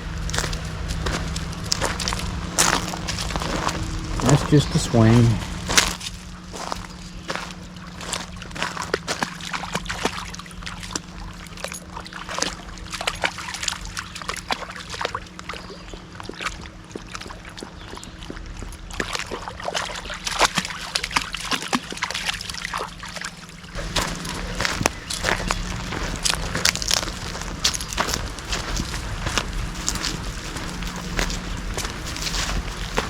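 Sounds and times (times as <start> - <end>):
water splashing in creek: 0.3 - 33.0.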